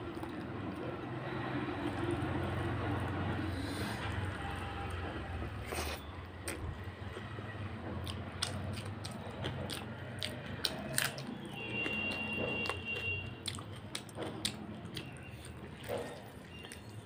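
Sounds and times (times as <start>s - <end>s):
chewing and wet mouth smacks: 5.6s - 7.4s, 8.0s - 17.0s.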